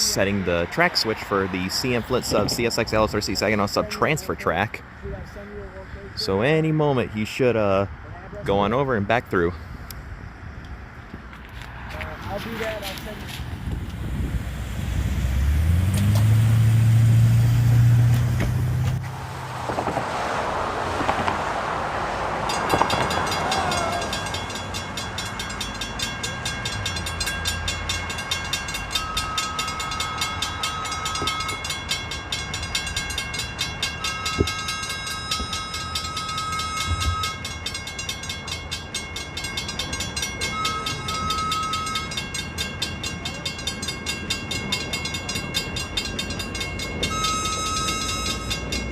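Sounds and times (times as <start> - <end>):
crossing bell ringing: 0.0 - 4.6, 22.1 - 48.9
locomotive engine drone: 0.0 - 48.9
high steady squeal: 44.6 - 48.9.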